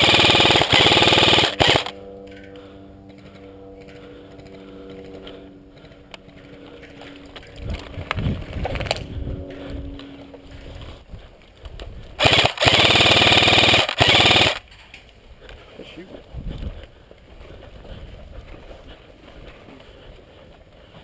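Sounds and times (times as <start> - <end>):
airsoft rifle full-auto burst: 0.0 - 2.0, 12.2 - 14.6.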